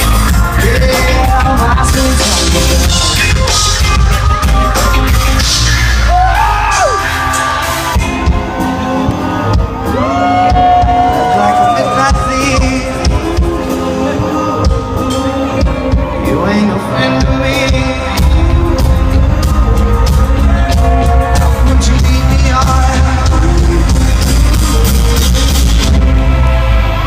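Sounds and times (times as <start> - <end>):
live rock band playing: 0.0 - 27.0.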